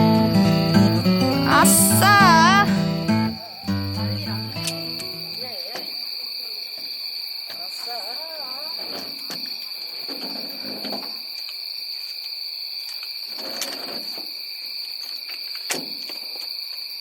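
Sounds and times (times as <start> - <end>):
high-pitched insect drone: 0.0 - 9.9.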